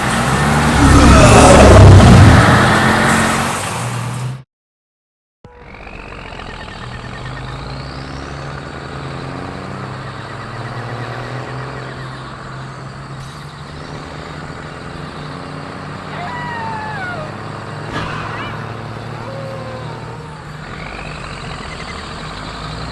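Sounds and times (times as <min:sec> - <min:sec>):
truck engine running: 0:00.0 - 0:04.4, 0:05.5 - 0:22.9
rising whine: 0:00.7 - 0:02.9.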